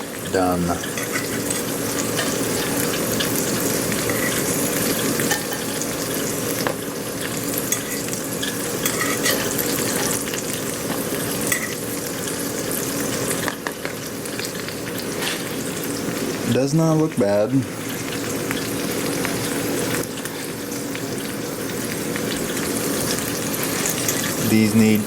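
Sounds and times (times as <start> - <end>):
meat sizzling in a skillet: 0.0 - 25.0
sharp pops of frying fat: 13.4 - 14.0.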